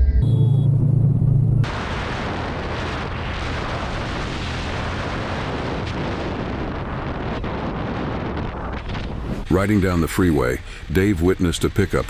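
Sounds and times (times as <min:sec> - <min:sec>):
loud low hum: 0:00.0 - 0:08.0, 0:08.9 - 0:10.9
wind buffeting microphone: 0:01.7 - 0:10.0.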